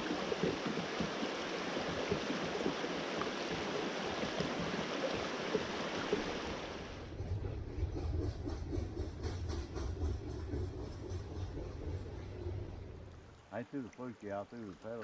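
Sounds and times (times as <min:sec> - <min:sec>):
river water rushing: 0:00.0 - 0:07.1.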